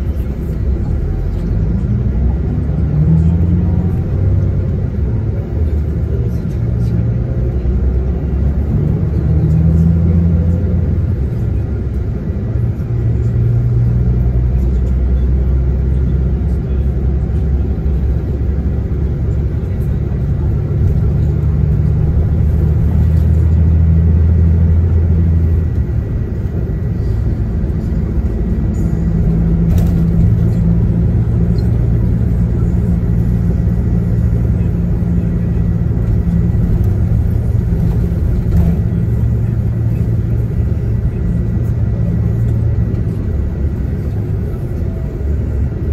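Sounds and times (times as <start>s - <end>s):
bus diesel engine: 0.0s - 45.9s
road rumble: 0.0s - 45.9s.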